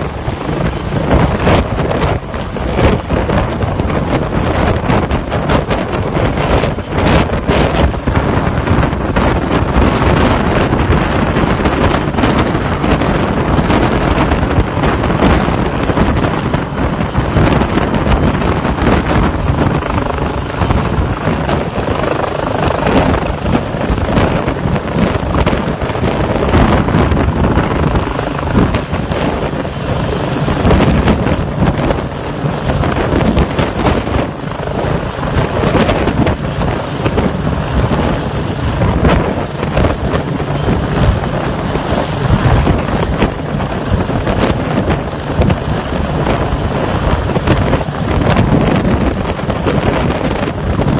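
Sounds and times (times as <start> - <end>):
helicopter running: 0.0 - 50.9
wind buffeting microphone: 0.0 - 50.9.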